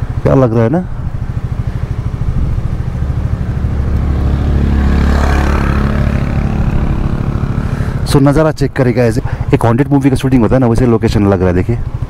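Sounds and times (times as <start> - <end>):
motorcycle engine idling: 0.0 - 12.0
rush of noise: 0.9 - 9.8.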